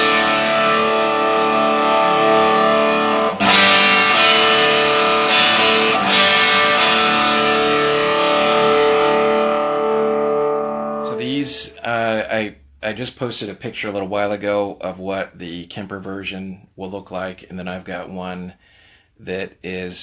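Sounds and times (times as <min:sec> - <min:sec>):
overdriven electric guitar chords: 0:00.0 - 0:11.8
picked guitar notes: 0:00.0 - 0:12.2.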